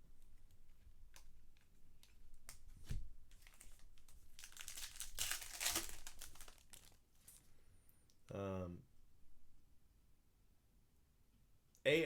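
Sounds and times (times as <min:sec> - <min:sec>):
wrappers crinkling: 0:01.1 - 0:07.4
card wrappers tearing: 0:03.3 - 0:07.0.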